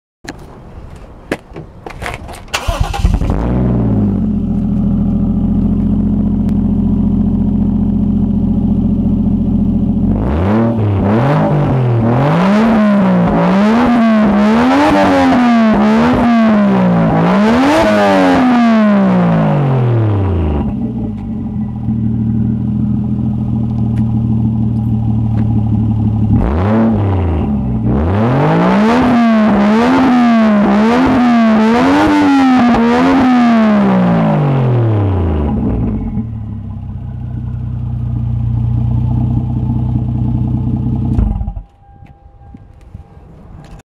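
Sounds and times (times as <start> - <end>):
car engine cranking: 1.8 - 6.6, 35.4 - 43.8
car engine idling: 2.6 - 11.0, 18.8 - 28.0, 34.1 - 43.8
car engine revving: 2.6 - 41.8.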